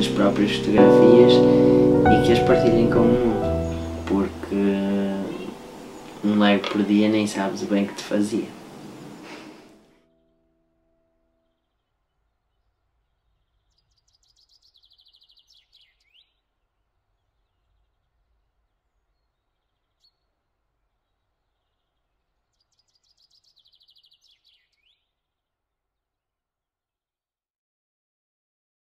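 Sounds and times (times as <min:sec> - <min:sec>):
low steady background hiss: 0:00.0 - 0:09.8.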